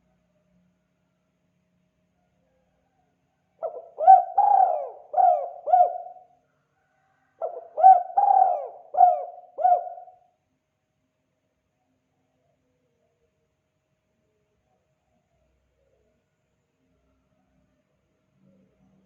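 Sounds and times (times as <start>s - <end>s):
dove cooing: 3.6s - 6.3s, 7.4s - 10.2s.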